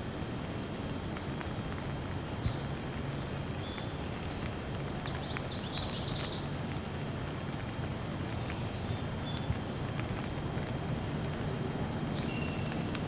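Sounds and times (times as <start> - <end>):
steady rain: 0.0 - 13.0
songbirds chirping: 0.8 - 6.7, 8.2 - 10.4, 11.3 - 13.0.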